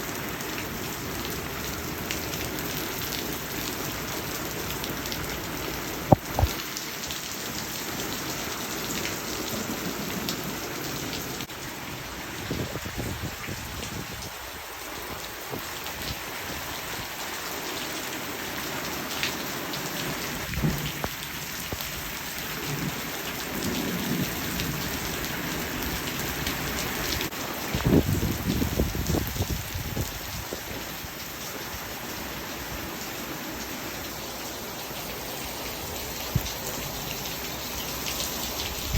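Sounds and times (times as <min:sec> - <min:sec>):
heavy rain falling: 0:00.0 - 0:38.9
low thunder rumbles: 0:20.4 - 0:26.2.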